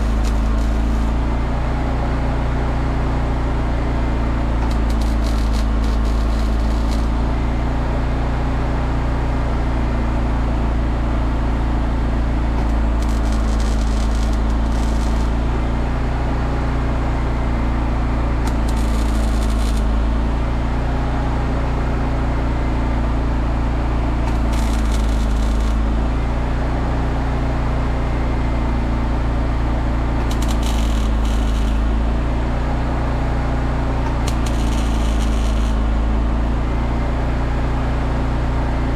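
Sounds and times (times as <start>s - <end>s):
welder crackling hiss: 0.0s - 1.2s, 4.6s - 7.3s, 12.6s - 15.4s, 18.5s - 20.0s, 24.3s - 25.8s, 30.2s - 31.9s, 34.2s - 35.8s
machine hum: 0.0s - 8.5s, 12.1s - 36.5s.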